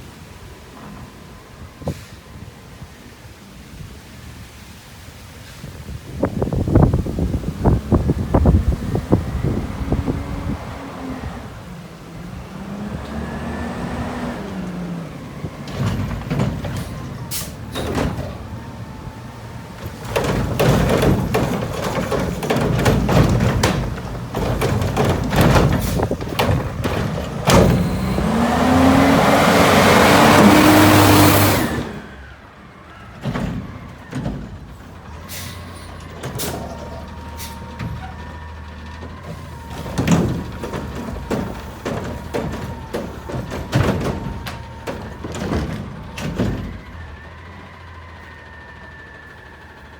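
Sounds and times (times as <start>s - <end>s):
garbage truck engine revving: 6.3s - 49.9s
carts and waste knocking: 14.6s - 32.2s, 33.1s - 48.4s.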